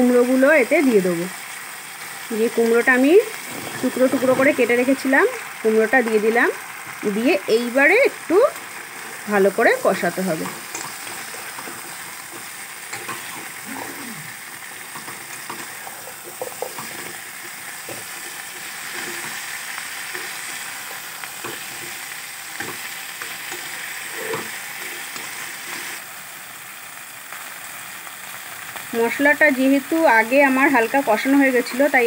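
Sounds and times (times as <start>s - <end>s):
vegetables sizzling in oil: 0.0s - 32.0s
spatula scraping and knocking pan: 14.9s - 26.0s.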